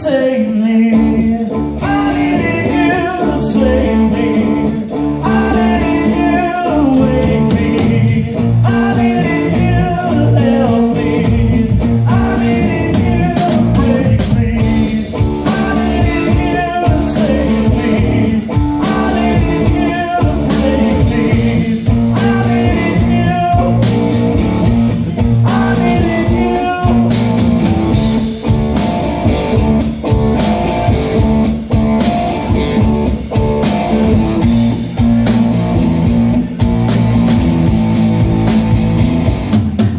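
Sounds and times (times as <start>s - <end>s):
person singing: 0.0s - 24.2s, 25.2s - 28.3s
blues-rock band playing: 0.0s - 39.9s.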